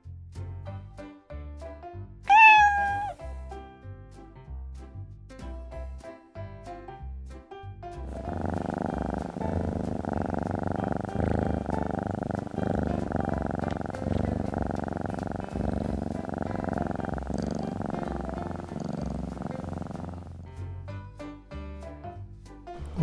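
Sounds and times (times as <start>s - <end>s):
cat purring: 2.3s - 3.2s, 8.1s - 20.6s.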